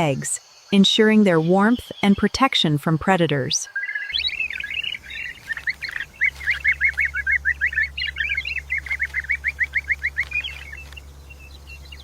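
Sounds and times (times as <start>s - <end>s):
bird chirping: 3.6s - 12.0s
low hum: 4.2s - 12.0s.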